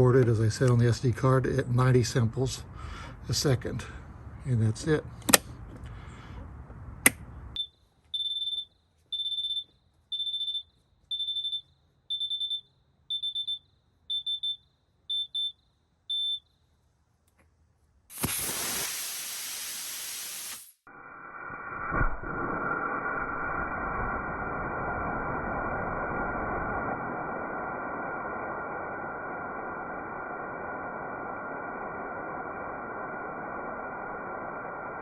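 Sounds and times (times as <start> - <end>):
high countdown beeps: 7.6 - 16.4
rocket motor burning: 18.1 - 35.0
dull rushing noise: 21.2 - 35.0.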